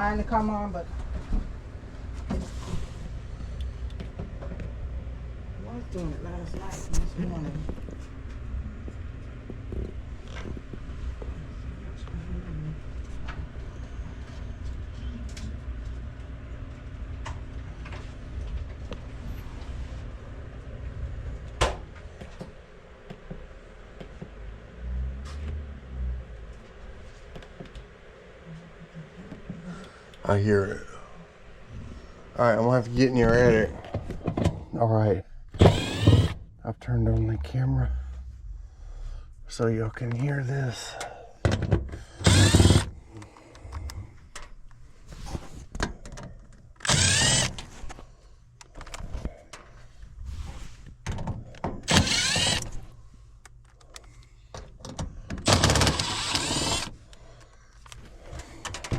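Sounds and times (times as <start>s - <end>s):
air conditioner hum: 0.0s - 58.9s
blower motor noise bursts: 35.5s - 36.5s, 42.1s - 43.2s, 46.8s - 48.0s, 51.8s - 53.0s, 55.4s - 57.1s.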